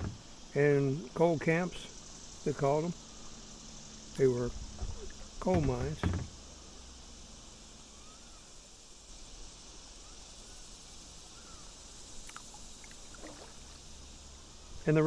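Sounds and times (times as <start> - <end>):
steady high hiss: 0.0 - 15.0
faint chirps: 7.5 - 15.0.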